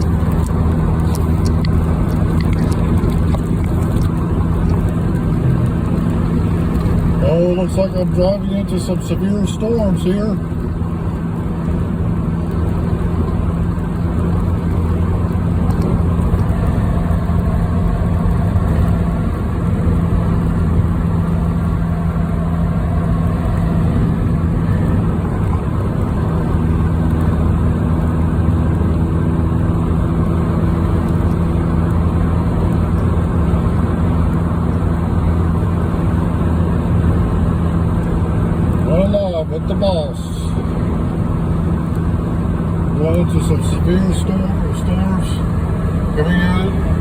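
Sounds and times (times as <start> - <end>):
car engine drone: 0.0 - 47.0
tyre and road noise: 0.0 - 47.0.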